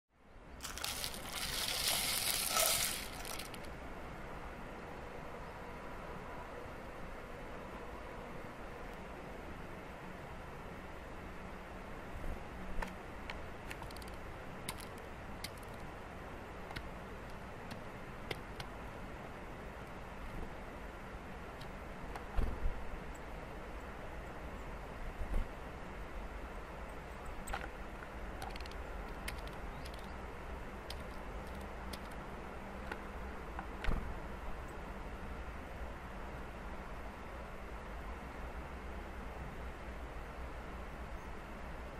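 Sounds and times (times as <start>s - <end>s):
low outdoor rumble: 0.2s - 41.9s
faint small ticks and clicks: 12.8s - 15.9s, 16.7s - 18.7s, 27.5s - 30.2s, 30.8s - 32.2s.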